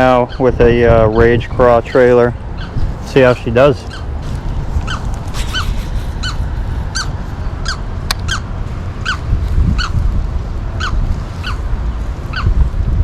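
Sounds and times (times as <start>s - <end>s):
wind rumble on microphone: 0.0s - 13.0s
bird squeaky call: 3.8s - 4.1s, 4.8s - 9.2s, 9.8s - 10.0s, 10.8s - 11.6s, 12.3s - 12.5s.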